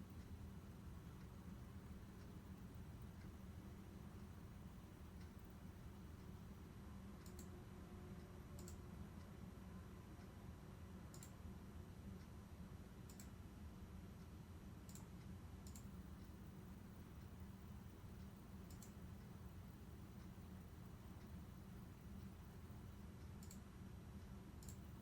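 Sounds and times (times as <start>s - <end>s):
low steady hum: 0.0s - 25.0s
faint sharp clicks: 7.2s - 7.5s, 8.6s - 8.8s, 11.1s - 11.4s, 13.1s - 13.3s, 14.9s - 16.4s, 18.2s - 19.3s, 22.2s - 23.6s, 24.6s - 24.9s.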